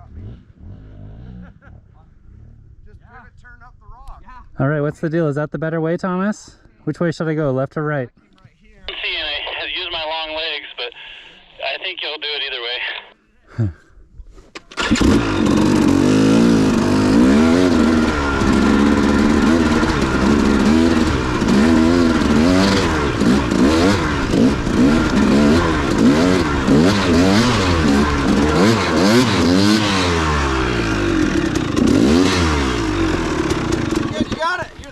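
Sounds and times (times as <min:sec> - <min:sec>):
dirt bike engine revving: 0:14.8 - 0:34.6.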